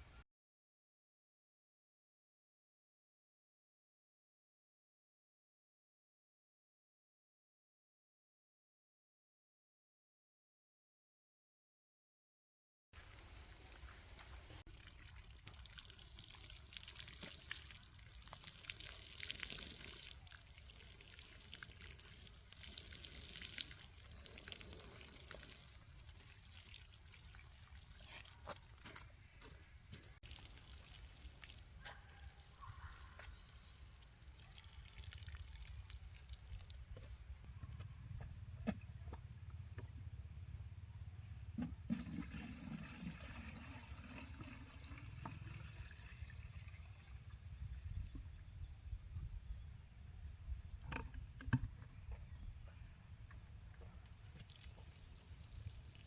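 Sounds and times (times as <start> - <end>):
water trickling and pouring: 14.6 - 37.1, 41.9 - 47.7, 53.9 - 56.0.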